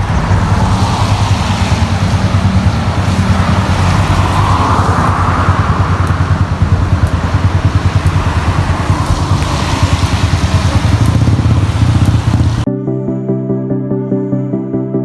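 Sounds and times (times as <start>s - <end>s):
passing vehicle rumble: 0.0s - 12.7s
rain hissing on wet street: 0.0s - 12.7s
calm background music: 8.3s - 15.0s.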